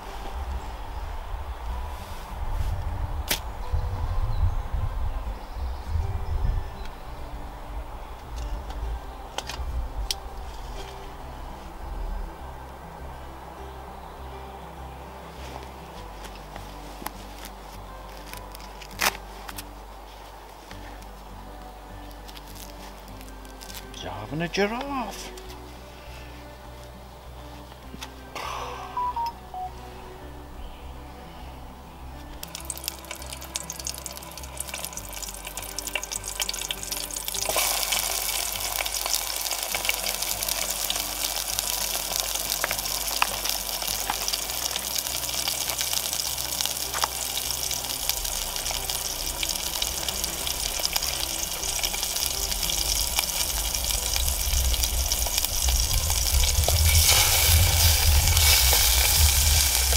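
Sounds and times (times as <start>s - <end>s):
background music: 0.0s - 59.9s
food sizzling in a pan: 32.4s - 59.9s.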